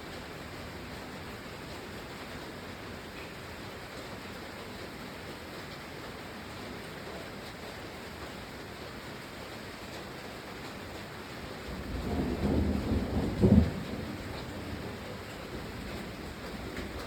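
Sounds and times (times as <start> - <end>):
steady rain falling: 0.0 - 17.0
thunder rolling: 11.6 - 17.0.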